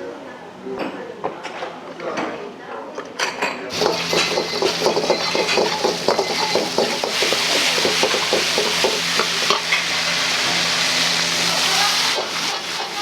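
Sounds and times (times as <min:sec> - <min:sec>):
food sizzling in a wok: 0:03.7 - 0:13.0
ladle scraping a wok: 0:03.7 - 0:13.0.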